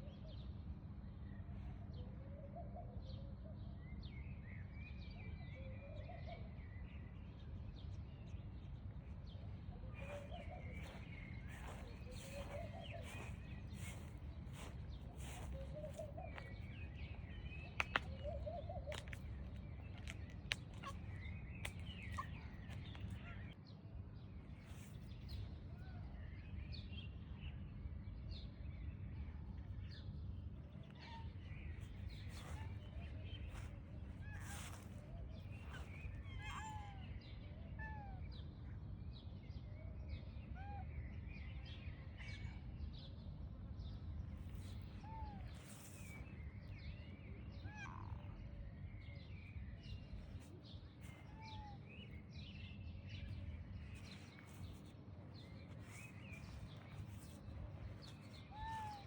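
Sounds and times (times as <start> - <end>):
low outdoor rumble: 6.4 - 37.7, 43.3 - 59.0
bird chirps and calls: 10.0 - 23.5, 55.4 - 59.0.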